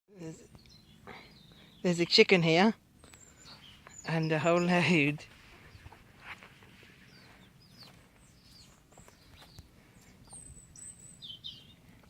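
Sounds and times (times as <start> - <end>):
faint chickens clucking: 5.4 - 12.0.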